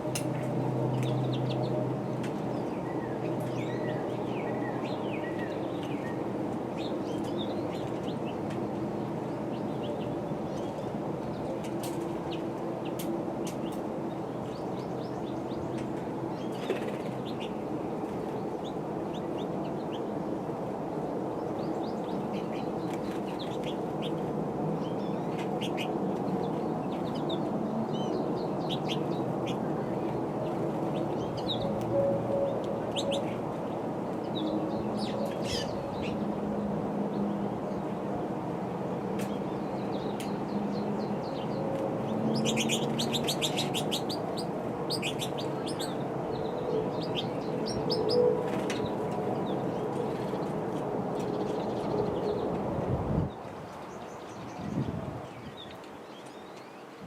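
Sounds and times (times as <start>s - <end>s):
small birds chirping: 39.2s - 50.6s.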